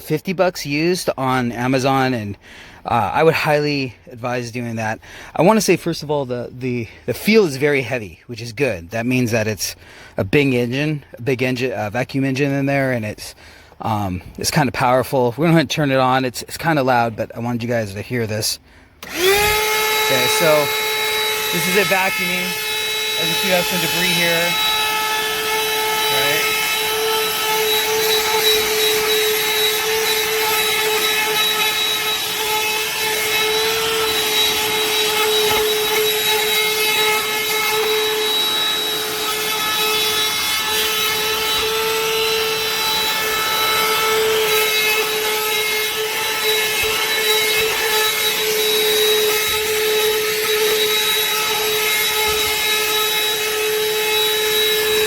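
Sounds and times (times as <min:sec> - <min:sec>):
handheld vacuum running: 0:19.0 - 0:55.0.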